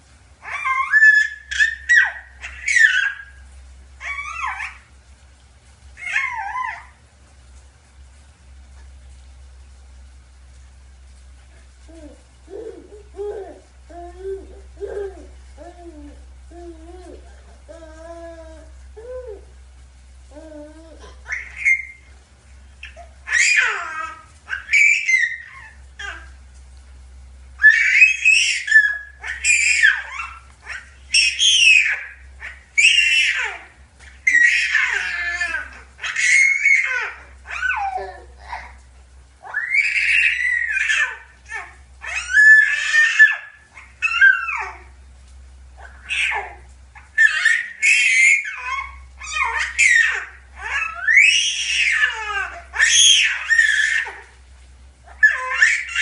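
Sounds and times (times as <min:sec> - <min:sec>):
young child squealing: 0:00.4 - 0:03.4, 0:04.0 - 0:04.8, 0:06.0 - 0:06.9, 0:21.3 - 0:22.1, 0:22.8 - 0:26.1, 0:27.6 - 0:38.7, 0:39.4 - 0:44.9, 0:45.8 - 0:46.6, 0:47.2 - 0:54.3, 0:55.1 - 0:56.0.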